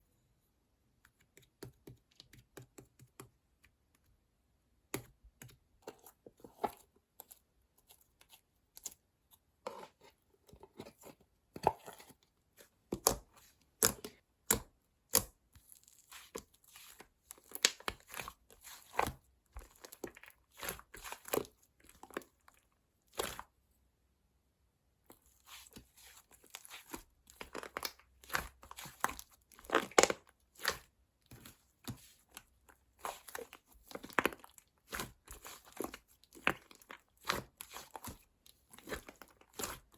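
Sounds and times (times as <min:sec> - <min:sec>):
crinkling handling sounds: 0:25.1 - 0:39.9.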